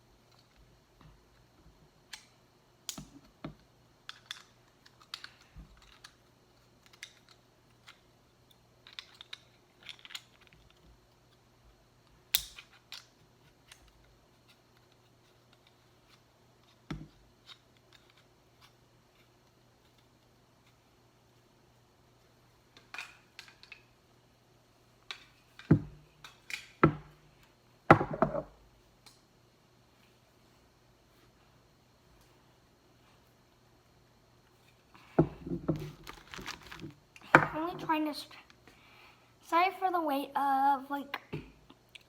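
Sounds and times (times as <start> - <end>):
plastic packaging clicks and rustles: 35.7 - 37.3.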